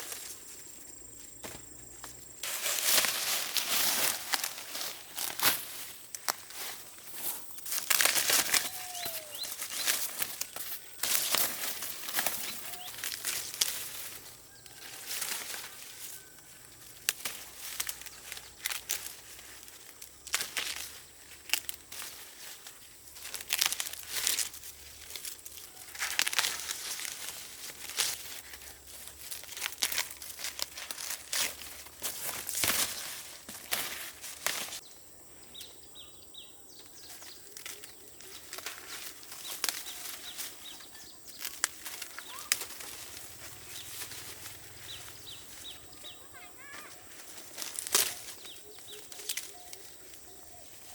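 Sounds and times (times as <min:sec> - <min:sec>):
dry leaves rustling: 0:00.0 - 0:50.9
faint bird chirps: 0:08.4 - 0:10.6, 0:12.1 - 0:15.0, 0:34.8 - 0:47.1, 0:48.0 - 0:50.9.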